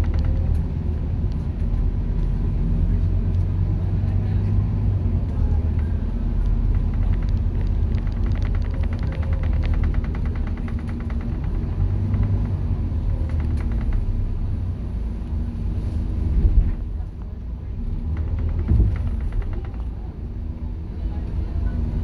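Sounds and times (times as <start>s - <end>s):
bus diesel engine rumble: 0.0s - 22.0s
rapid rattling tick: 5.7s - 14.6s, 17.9s - 20.1s.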